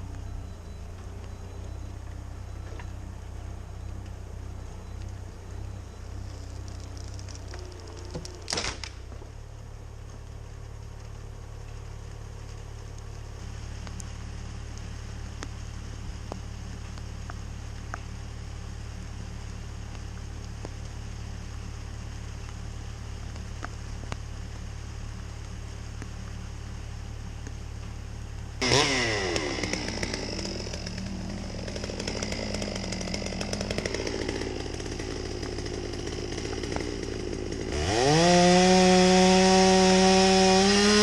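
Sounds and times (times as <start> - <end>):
excavator engine droning: 0.0 - 41.0
light ticks: 16.2 - 18.1, 23.2 - 24.6.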